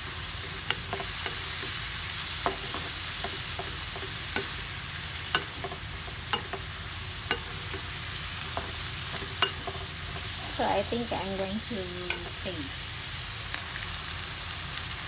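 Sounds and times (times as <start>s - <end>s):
food sizzling in a frying pan: 0.0s - 15.0s
utensil clicking against pan: 0.4s - 11.1s, 11.9s - 12.5s.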